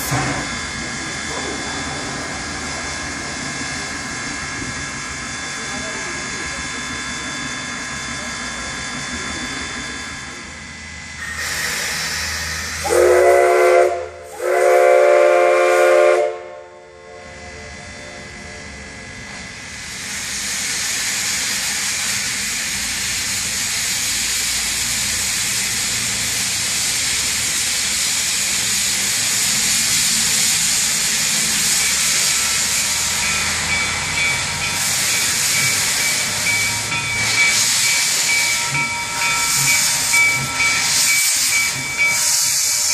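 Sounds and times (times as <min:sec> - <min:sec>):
escaping steam hissing: 0:00.0 - 0:07.0, 0:11.2 - 0:16.2, 0:19.6 - 0:42.9
steam locomotive whistle blasts: 0:11.2 - 0:17.4.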